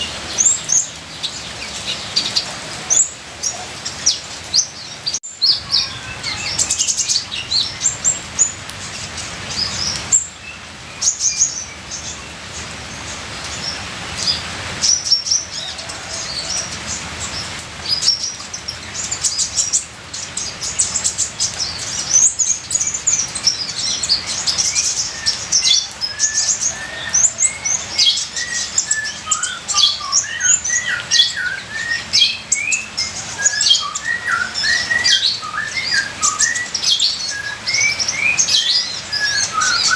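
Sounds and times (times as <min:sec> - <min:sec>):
bird chirping and trilling: 0:00.0 - 0:39.9
trickling rain water: 0:00.0 - 0:39.9
lower whistled bird notes: 0:23.5 - 0:39.9.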